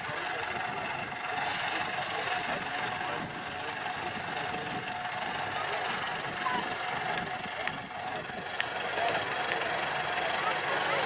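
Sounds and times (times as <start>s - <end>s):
truck engine running: 0.0s - 11.0s
short hiss bursts: 1.4s - 2.7s.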